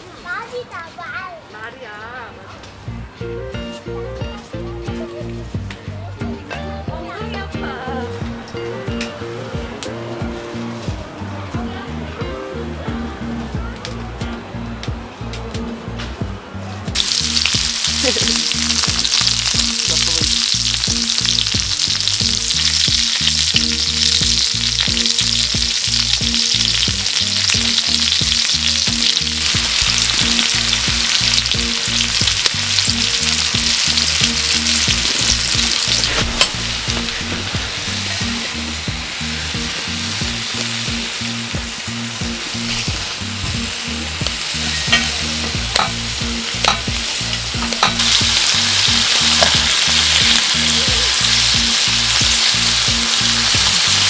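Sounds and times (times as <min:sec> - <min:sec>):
food sizzling on hot griddle: 0:16.9 - 0:54.0.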